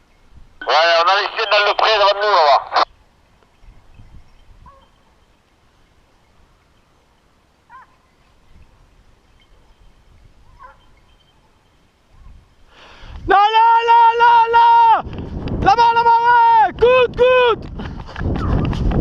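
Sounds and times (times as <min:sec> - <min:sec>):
wind rumble: 0:02.9 - 0:19.0
distant hounds baying: 0:04.6 - 0:05.1, 0:07.6 - 0:08.2, 0:09.4 - 0:12.4.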